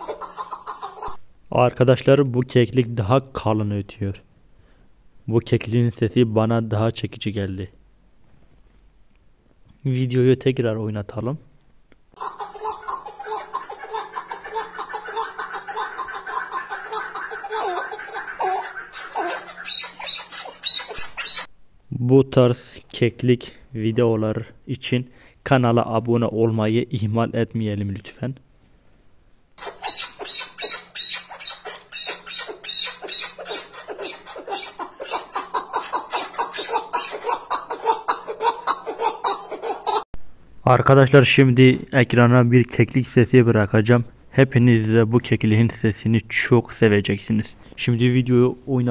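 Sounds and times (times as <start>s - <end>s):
partridge clucking call: 12.2s - 21.5s, 29.6s - 40.0s.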